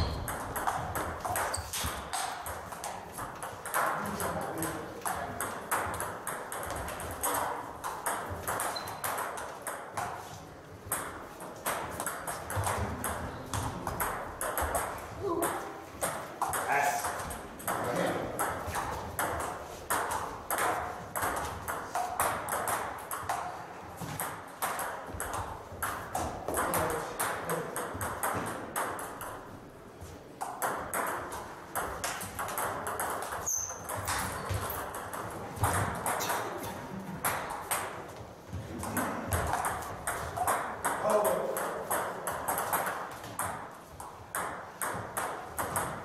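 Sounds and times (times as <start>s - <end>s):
high squeak: 33.4s - 33.9s.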